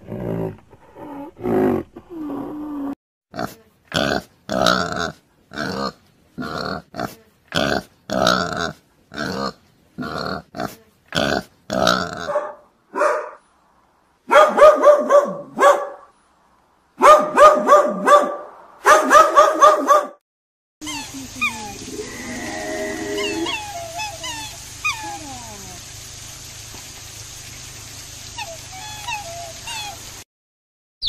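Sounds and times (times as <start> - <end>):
pigs grunting: 0.0 - 12.4, 21.8 - 23.7
dog barking: 12.2 - 13.4, 14.3 - 16.1, 17.0 - 20.2.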